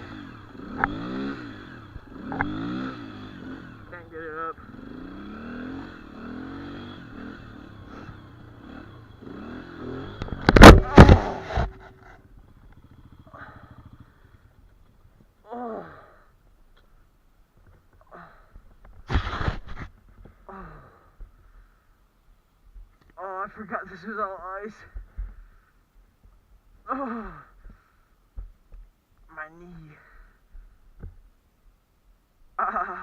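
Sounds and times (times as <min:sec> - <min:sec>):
dirt bike engine revving: 0:00.0 - 0:15.1
loud thumps: 0:10.1 - 0:12.6.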